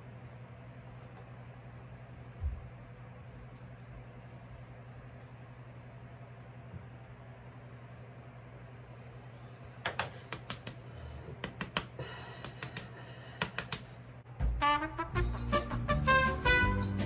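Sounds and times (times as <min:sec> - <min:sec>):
low steady hum: 0:00.0 - 0:17.0
music with brass: 0:14.4 - 0:17.0.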